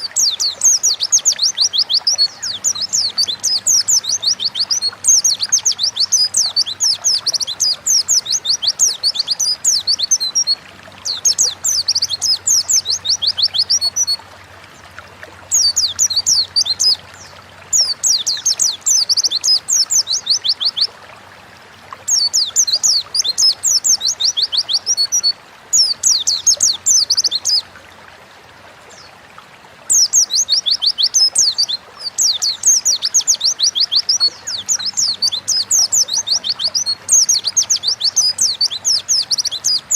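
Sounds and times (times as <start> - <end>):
bird twittering song: 0.0 - 14.9, 15.5 - 20.9, 22.0 - 27.7, 29.9 - 39.9.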